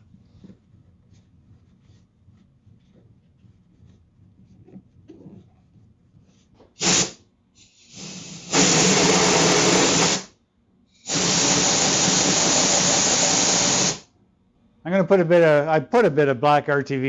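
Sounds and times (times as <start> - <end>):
pressurised spray hissing: 6.8 - 10.3, 11.0 - 14.1.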